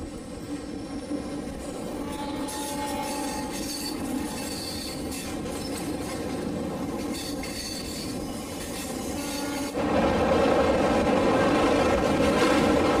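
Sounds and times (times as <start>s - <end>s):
train wheels rumbling on track: 0.0s - 13.0s
faint high wheel squeal: 2.4s - 6.0s, 7.1s - 9.6s.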